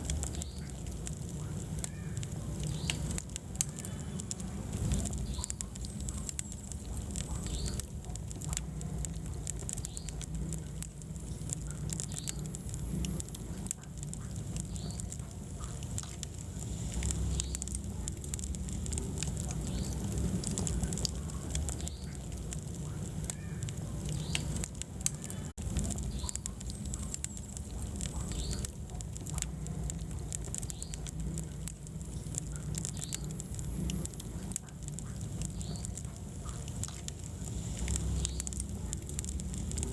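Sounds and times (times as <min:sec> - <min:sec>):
fire crackling and popping: 0:00.0 - 0:39.9
wood fire burning: 0:00.0 - 0:39.9.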